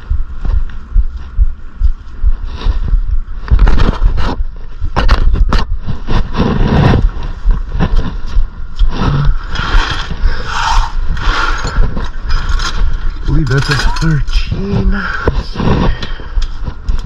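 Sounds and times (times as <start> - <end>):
steady low rumble: 0.0 - 17.0
metal tools clanking and scraping: 11.2 - 14.5.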